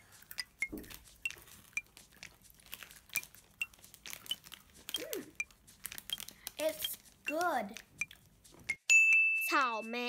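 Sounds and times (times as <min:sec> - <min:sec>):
biscuit stick crunching: 0:00.0 - 0:07.0.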